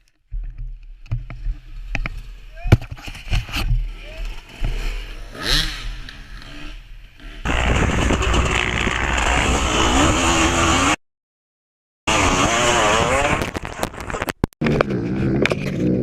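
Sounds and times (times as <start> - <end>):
dirt bike engine revving: 3.8 - 11.0, 12.1 - 13.6.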